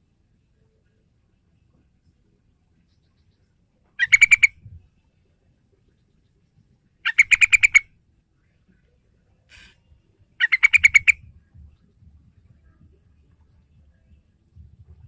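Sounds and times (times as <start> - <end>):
bird chattering call: 4.0 - 4.6, 7.0 - 7.8, 10.4 - 11.2
faint brief rasp: 9.5 - 9.8.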